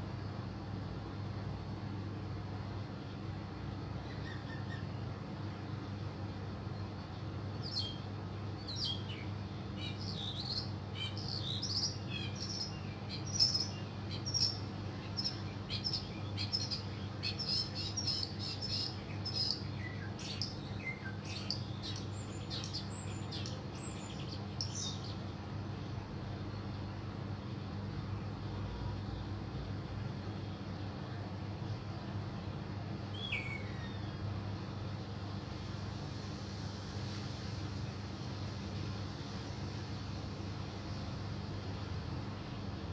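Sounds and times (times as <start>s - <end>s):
songbirds chirping: 4.0s - 27.6s.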